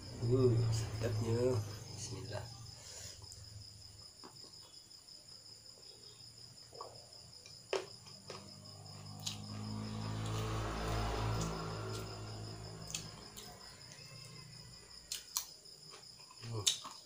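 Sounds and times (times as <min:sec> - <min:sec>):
low hum: 0:00.0 - 0:03.9
crickets trilling: 0:00.0 - 0:17.0
sharp clicks of eating: 0:15.1 - 0:17.0.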